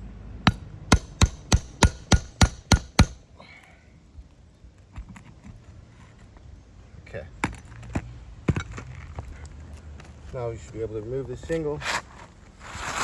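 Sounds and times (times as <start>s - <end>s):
hammer striking nail puller: 0.5s - 3.2s.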